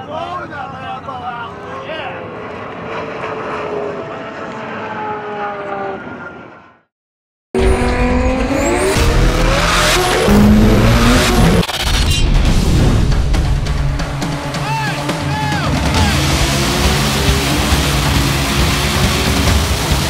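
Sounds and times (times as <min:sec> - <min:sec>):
car engine accelerating hard: 0:07.6 - 0:12.0, 0:12.8 - 0:20.0.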